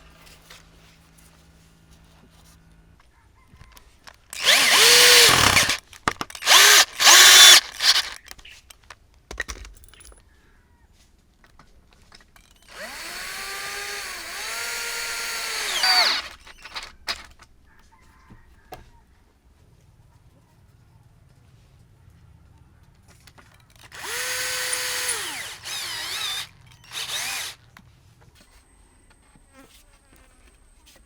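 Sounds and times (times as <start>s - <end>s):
electric drill motor whine: 4.4s - 5.8s, 6.4s - 8.2s, 12.7s - 17.3s, 23.9s - 27.6s.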